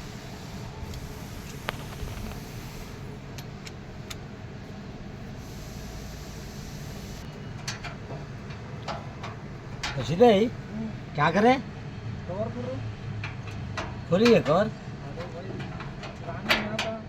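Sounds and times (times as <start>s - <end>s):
low engine hum: 0.0s - 14.1s.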